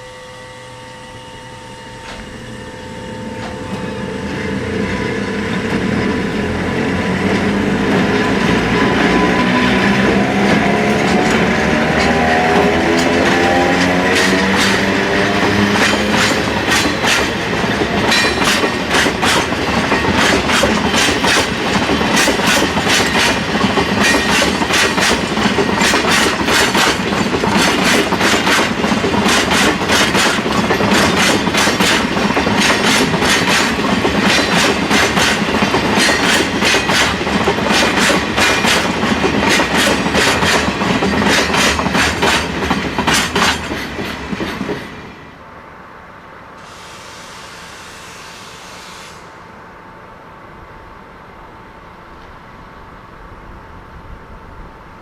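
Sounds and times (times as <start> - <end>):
train wheels clickety-clack: 3.4 - 45.1.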